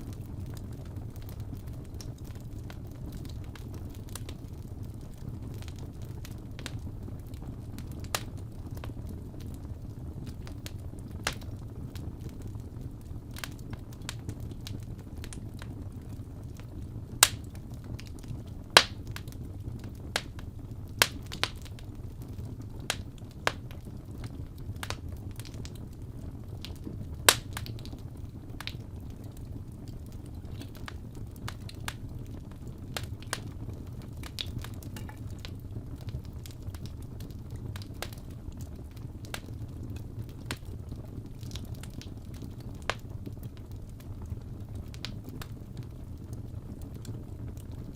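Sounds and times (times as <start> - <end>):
low fire rumble: 0.0 - 47.9
wood fire crackling and popping: 0.0 - 47.9.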